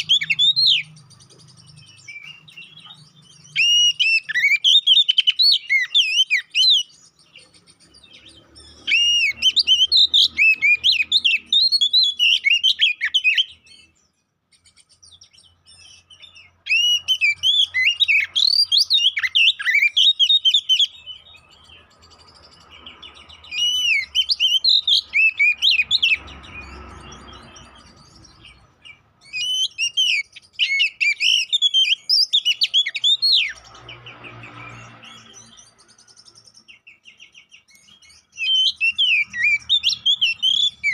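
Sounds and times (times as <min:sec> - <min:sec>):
songbird whistling song: 0:00.0 - 0:40.9.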